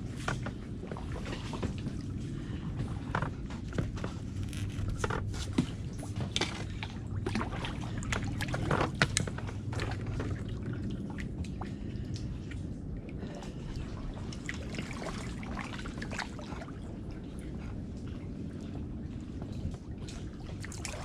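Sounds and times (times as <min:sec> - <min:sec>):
paddle dipping into water: 0:00.0 - 0:12.6
small splashes and knocks: 0:00.0 - 0:17.2, 0:18.2 - 0:21.0
water dripping and trickling: 0:06.0 - 0:17.8.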